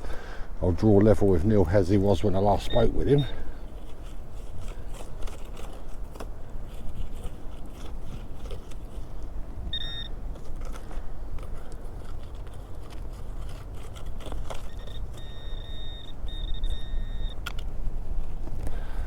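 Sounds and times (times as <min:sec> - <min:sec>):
metal detector tones: 0:02.2 - 0:03.5, 0:09.7 - 0:10.8, 0:14.2 - 0:17.7.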